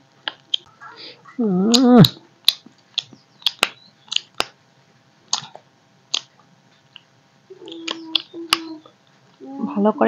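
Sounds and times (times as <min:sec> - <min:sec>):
low steady hum: 0:00.0 - 0:10.0
wet chewing smacks and clicks: 0:01.7 - 0:04.6, 0:05.3 - 0:07.1, 0:07.7 - 0:08.8.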